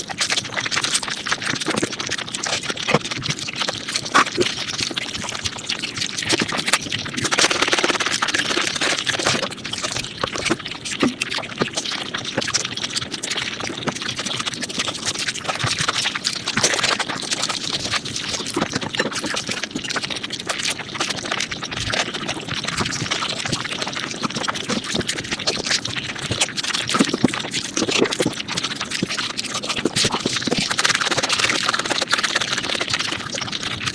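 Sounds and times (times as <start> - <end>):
chewing and crunching: 0.0 - 33.9
slurping: 6.4 - 10.0, 29.6 - 33.8.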